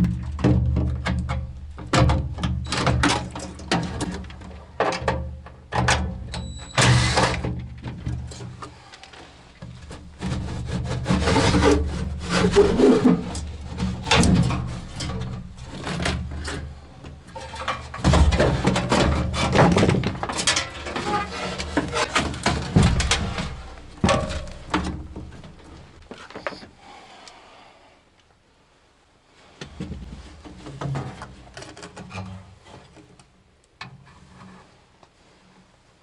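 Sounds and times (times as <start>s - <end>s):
rubbing and scraping: 6.8s - 26.7s.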